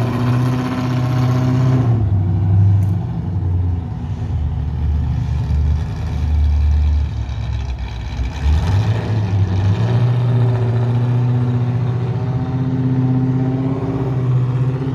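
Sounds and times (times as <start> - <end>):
car engine idling choppily: 2.8 - 8.4.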